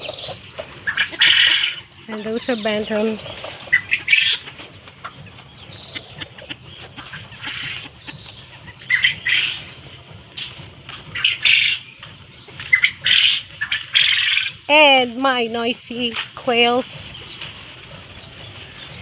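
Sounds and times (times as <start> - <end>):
farm birds squawking and chirping: 0.0 - 19.0.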